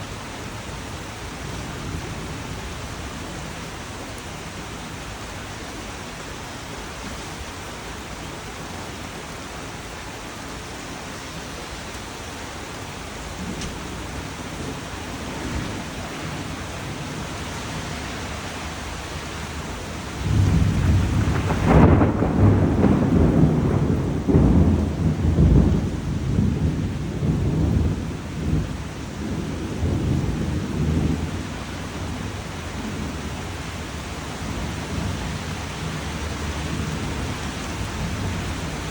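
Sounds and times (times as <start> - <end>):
rain hiss: 0.0 - 38.9
low thunder rumble: 13.1 - 38.9.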